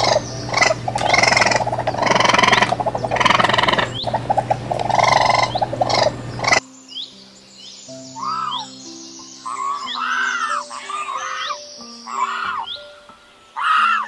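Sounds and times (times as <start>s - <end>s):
raccoon chittering: 0.0s - 6.6s, 9.4s - 12.8s
faint bird chirps: 0.0s - 14.0s.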